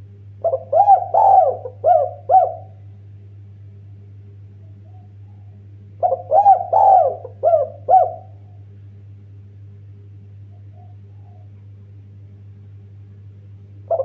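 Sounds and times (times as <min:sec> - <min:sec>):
steady low hum: 0:00.0 - 0:14.0
dove cooing: 0:00.4 - 0:02.9, 0:04.6 - 0:08.6, 0:10.4 - 0:11.7.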